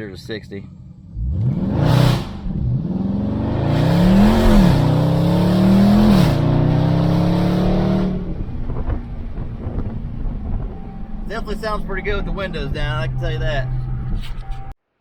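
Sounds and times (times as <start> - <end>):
car engine accelerating hard: 0.6 - 14.2.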